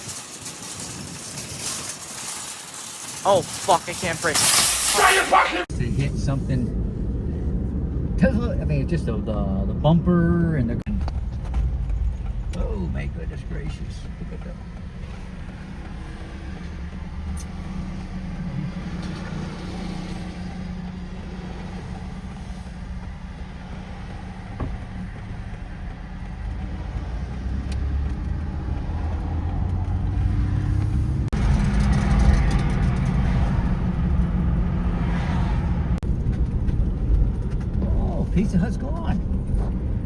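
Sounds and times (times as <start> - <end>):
tyre hiss: 1.9 - 6.6
car engine drone in cabin: 5.6 - 40.0.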